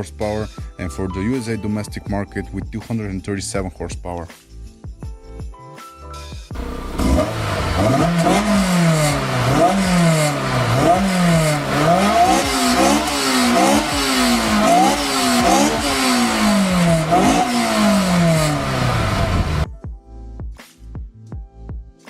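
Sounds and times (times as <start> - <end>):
car engine revving: 6.6 - 19.6.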